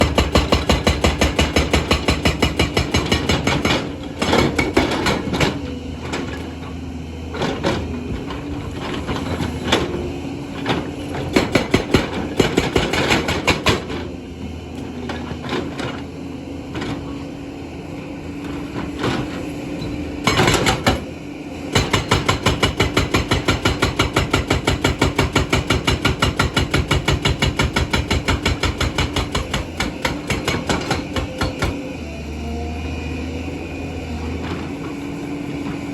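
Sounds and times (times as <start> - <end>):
hydraulic breaker hammering stone: 0.0 - 5.7, 10.6 - 14.1, 20.2 - 32.0
engine running: 0.0 - 35.9.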